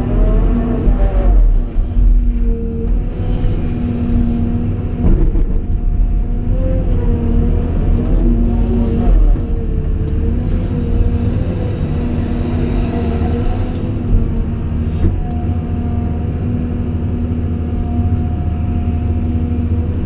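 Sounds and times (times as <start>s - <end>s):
diesel engine rumble: 0.0s - 20.0s
hydraulic whine: 0.3s - 15.3s.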